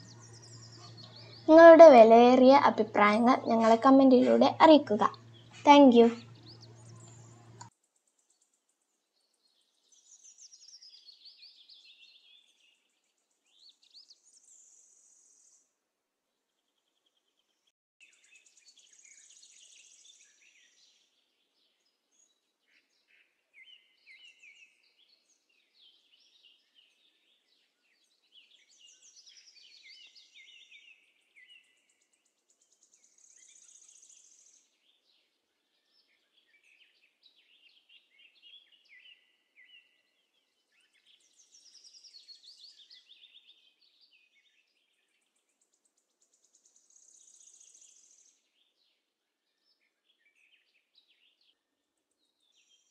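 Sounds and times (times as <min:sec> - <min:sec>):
birds chirping and trilling: 0:00.0 - 0:07.7, 0:09.2 - 0:15.6, 0:17.4 - 0:52.9.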